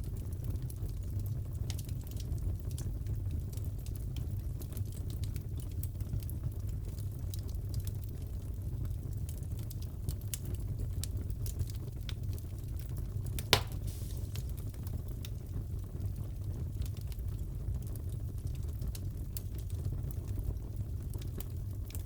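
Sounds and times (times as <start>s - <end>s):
wood fire crackling: 0.0s - 22.0s
fire popping: 9.2s - 22.0s.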